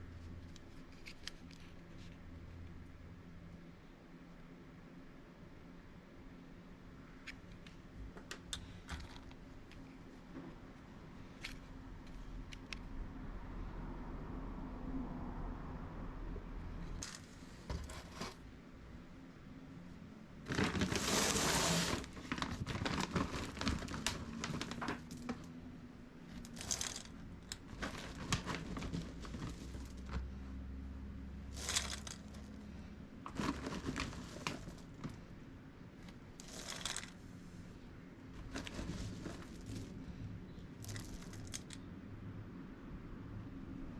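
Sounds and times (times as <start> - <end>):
crinkling and rustling handling: 0.0 - 2.3, 17.0 - 18.5, 20.4 - 30.4, 31.5 - 35.4, 36.0 - 41.8.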